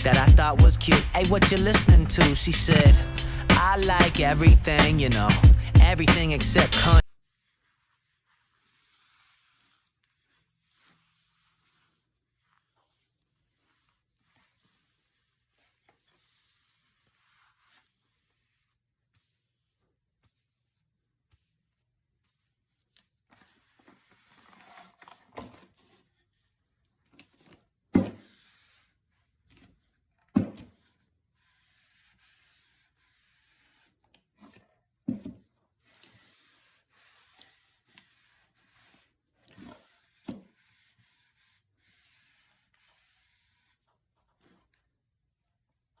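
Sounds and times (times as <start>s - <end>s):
rubbing oil into wooden board: 0.0s - 21.5s, 22.2s - 24.9s, 30.8s - 34.6s, 35.8s - 44.6s.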